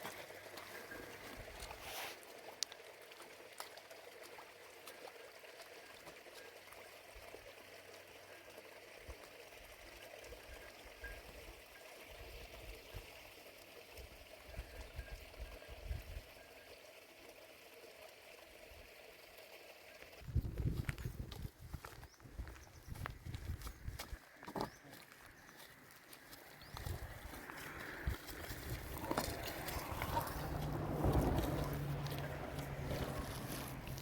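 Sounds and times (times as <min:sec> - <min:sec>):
running water: 0:00.0 - 0:22.6, 0:23.2 - 0:34.0
wind buffeting microphone: 0:20.2 - 0:24.0, 0:28.0 - 0:34.0.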